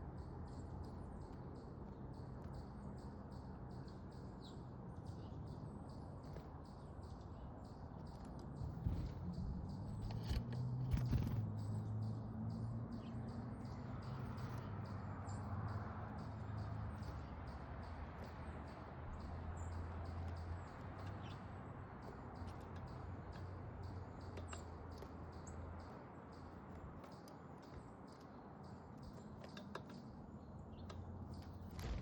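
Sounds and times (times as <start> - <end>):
small songbirds chirping: 0.0 - 32.0
sharp clicks: 8.0 - 11.9.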